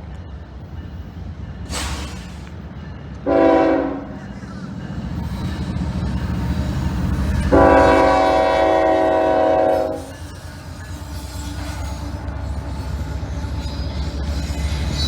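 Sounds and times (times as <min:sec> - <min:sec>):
train rumble: 0:00.0 - 0:15.0
locomotive horn blast: 0:03.3 - 0:04.2, 0:07.5 - 0:10.1.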